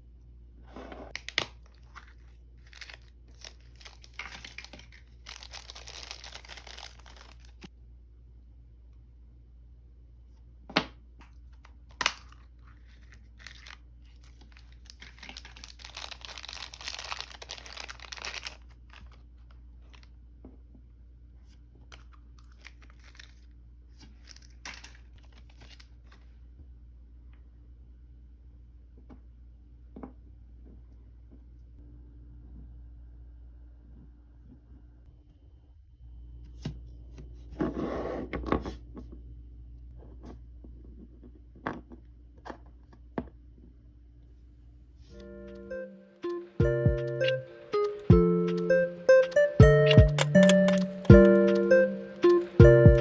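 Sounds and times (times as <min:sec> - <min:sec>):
packaging crinkling and tearing: 0:01.1 - 0:07.7, 0:11.9 - 0:20.1, 0:21.9 - 0:26.3.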